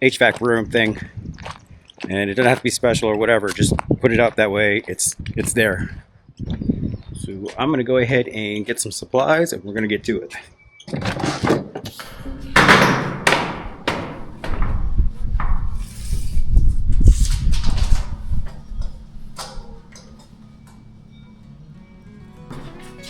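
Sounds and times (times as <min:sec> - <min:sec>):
knocks bangs and scrapes: 0:11.0 - 0:20.8.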